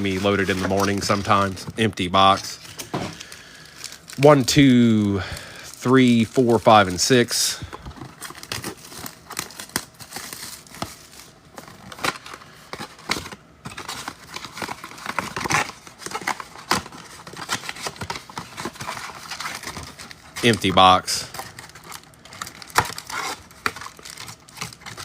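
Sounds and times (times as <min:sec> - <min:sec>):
foil packs rustling: 0:00.0 - 0:25.0
plastic wrap crinkling: 0:00.0 - 0:25.0
cardboard tearing: 0:08.1 - 0:25.0.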